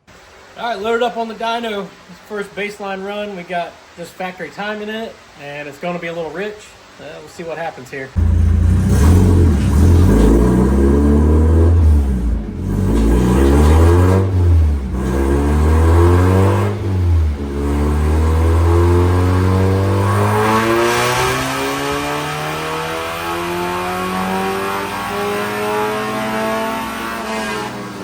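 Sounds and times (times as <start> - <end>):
car engine at full throttle: 8.2 - 28.0.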